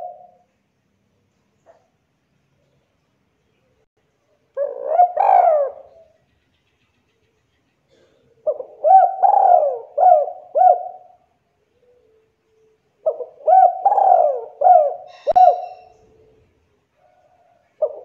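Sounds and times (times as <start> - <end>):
dove cooing: 0.0 - 0.4, 4.6 - 6.2, 7.9 - 12.3, 13.0 - 18.0.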